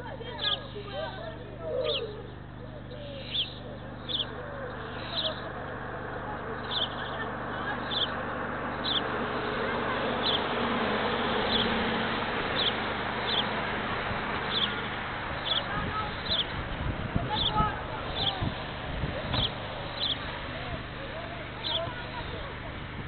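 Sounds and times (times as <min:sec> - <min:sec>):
rushing background noise: 0:00.0 - 0:23.0
small bird chirping: 0:00.2 - 0:05.7, 0:06.6 - 0:10.5, 0:11.4 - 0:11.8, 0:12.5 - 0:13.6, 0:14.5 - 0:18.6, 0:19.3 - 0:20.4, 0:21.6 - 0:22.4.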